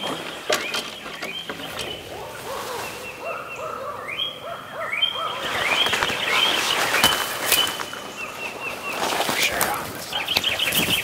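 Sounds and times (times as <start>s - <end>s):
birds calling: 0.0s - 11.0s
owl-like hoots: 2.0s - 5.9s.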